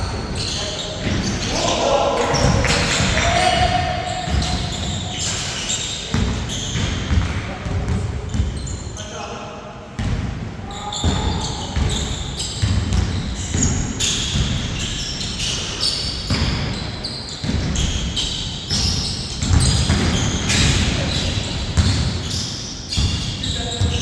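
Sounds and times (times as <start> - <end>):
sneakers squeaking on floor: 0.0 - 9.3, 10.0 - 24.0
basketball bouncing on court: 2.3 - 5.4, 6.1 - 8.8, 10.0 - 15.6, 16.3 - 24.0.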